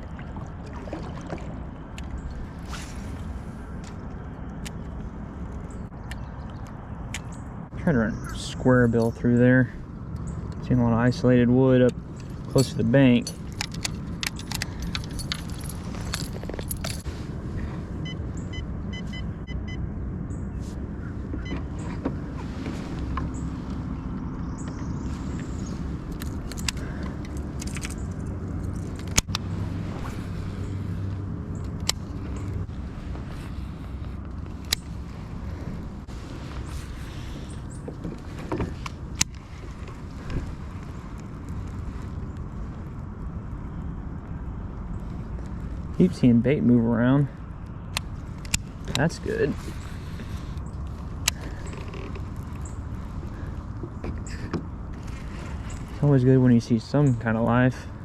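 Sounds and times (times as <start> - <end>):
wind rumbling on microphone: 0.0 - 58.0
fishing tackle jangling: 12.2 - 17.1, 26.1 - 29.2.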